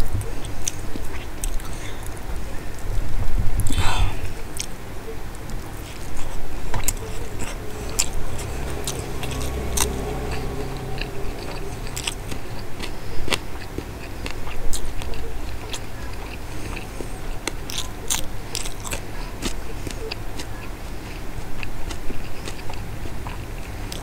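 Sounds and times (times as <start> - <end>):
wet chewing clicks and smacks: 12.8 - 24.0.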